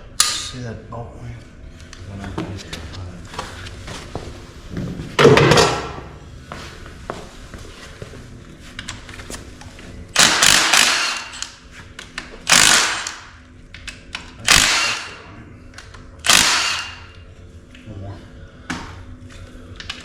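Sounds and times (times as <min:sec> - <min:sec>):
loud sharp tool bursts: 0:10.2 - 0:11.5, 0:12.5 - 0:13.3, 0:14.4 - 0:15.2, 0:16.2 - 0:17.1.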